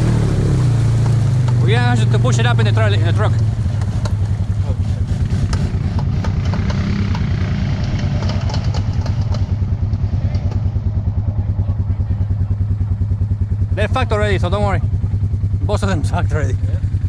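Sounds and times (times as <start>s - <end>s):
atv engine idling: 0.0s - 17.0s
light knocks and clatter: 5.5s - 10.7s.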